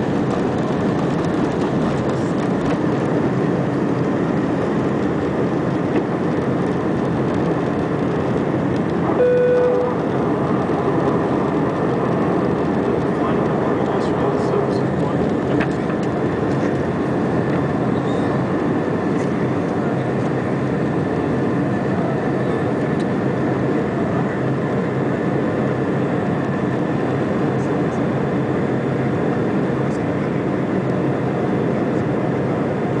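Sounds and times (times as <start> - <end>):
jet engine rumble: 0.0 - 33.0
faint thin high tone: 9.2 - 10.0.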